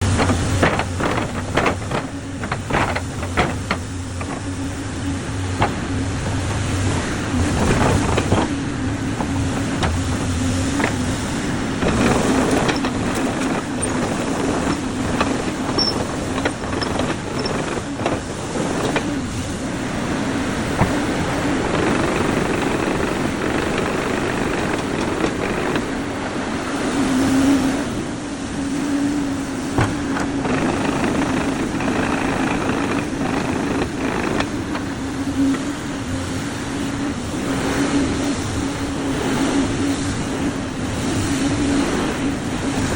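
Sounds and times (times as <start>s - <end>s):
metallic clanks and knocks: 0.0s - 19.2s, 29.7s - 35.6s
excavator diesel engine running: 0.0s - 26.6s, 29.4s - 37.9s.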